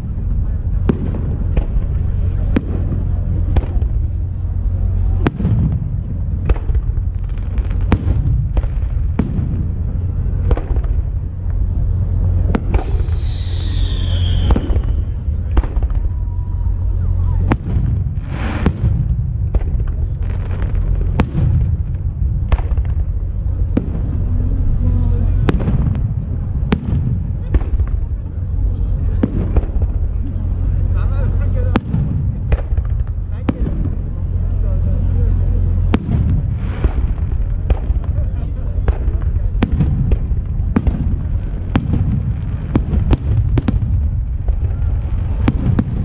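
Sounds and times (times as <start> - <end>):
firework shells bursting: 10.4 - 16.1
falling firework whistle: 12.4 - 18.9, 44.6 - 46.0.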